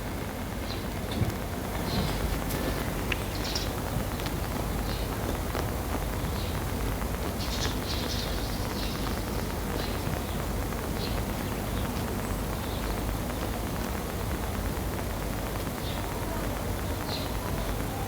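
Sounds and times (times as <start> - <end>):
sparrow chirping: 3.1 - 3.8, 7.4 - 10.0.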